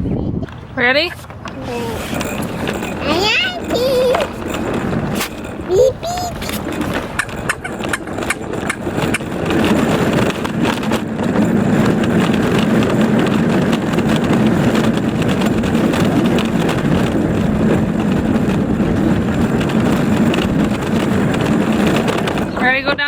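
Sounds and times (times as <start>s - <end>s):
wheels rattling: 0.3s - 23.0s
toy car rolling over ground: 0.4s - 23.0s.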